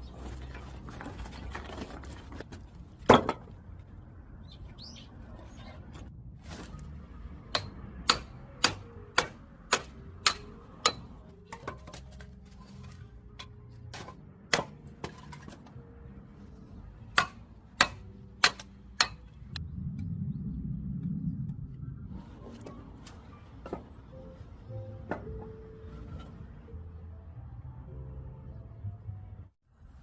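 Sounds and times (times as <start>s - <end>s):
low rumble: 19.2s - 24.4s.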